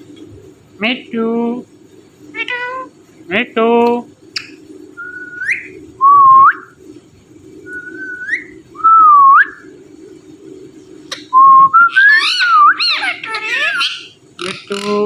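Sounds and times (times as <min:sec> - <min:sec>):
parrot whistling: 0:02.4 - 0:02.9, 0:04.4 - 0:06.8, 0:07.7 - 0:09.7, 0:11.1 - 0:15.0.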